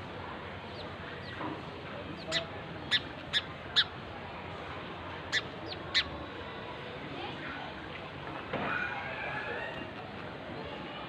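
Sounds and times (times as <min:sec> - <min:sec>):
small birds chirping: 0:00.6 - 0:04.0, 0:05.2 - 0:06.2.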